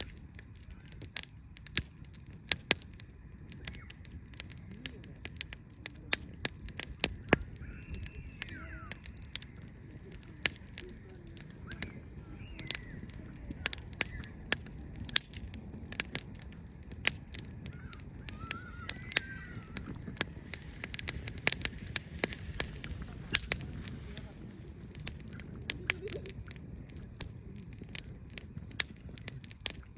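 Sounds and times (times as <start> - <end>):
low steady rumble: 0.0 - 29.9
wood fire crackling and popping: 0.0 - 29.9
faint bird call: 3.6 - 4.1, 7.2 - 14.5, 17.7 - 20.0.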